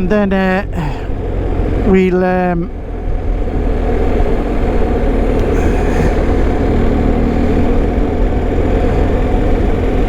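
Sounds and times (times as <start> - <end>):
motorcycle engine cruising: 0.0 - 10.0
road noise: 0.0 - 10.0
wind rushing: 5.4 - 9.3.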